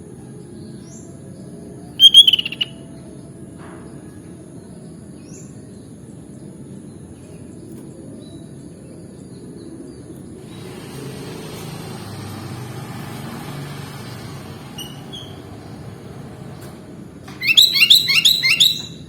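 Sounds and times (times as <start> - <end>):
road traffic rumble: 1.9 - 2.8, 10.2 - 19.0
faint bird chirps: 2.0 - 2.8, 17.3 - 19.0.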